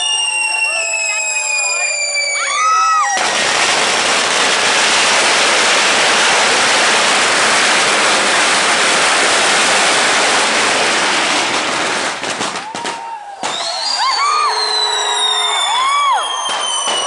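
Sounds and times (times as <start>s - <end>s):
sharp cracks: 3.1s - 13.8s
loud rushing hiss: 3.3s - 12.2s.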